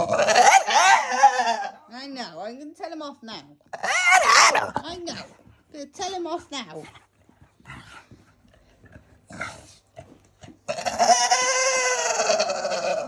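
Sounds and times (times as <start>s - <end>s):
dog whining howl: 0.0s - 1.8s, 3.8s - 4.7s, 10.7s - 13.0s.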